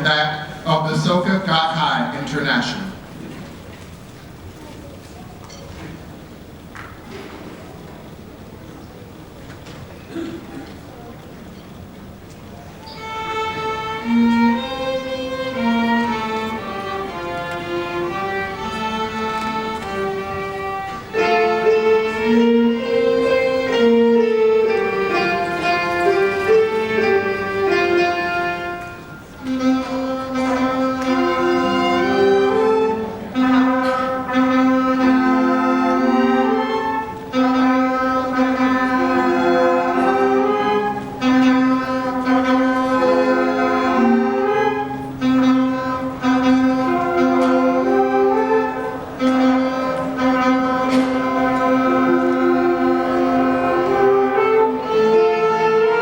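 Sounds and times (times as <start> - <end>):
bowed strings slow melody: 13.0 - 56.0.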